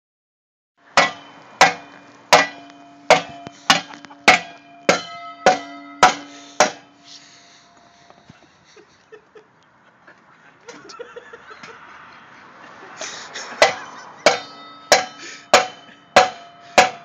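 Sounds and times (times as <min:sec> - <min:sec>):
hammer blows on metal: 0:01.0 - 0:08.3, 0:13.5 - 0:17.0.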